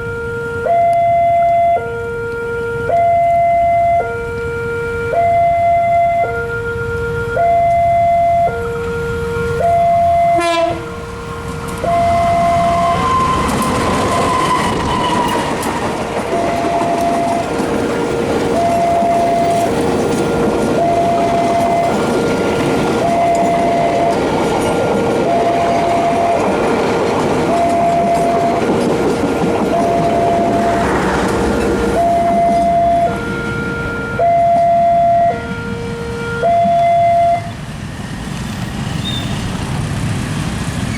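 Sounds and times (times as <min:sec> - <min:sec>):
train horn: 0:00.0 - 0:37.6
level-crossing alarm: 0:00.0 - 0:38.4
train wheels clattering: 0:11.4 - 0:33.4.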